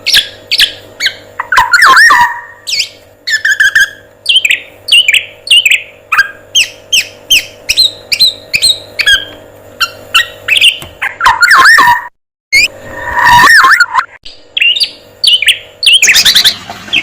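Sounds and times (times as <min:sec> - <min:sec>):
whistled bird phrases: 0:00.1 - 0:12.7.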